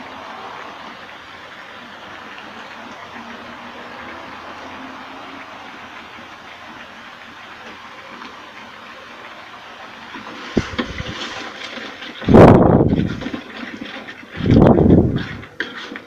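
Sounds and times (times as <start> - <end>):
paste sizzling in oil: 0.0 - 12.2
spatula scraping a wok: 10.1 - 12.2, 13.0 - 16.0.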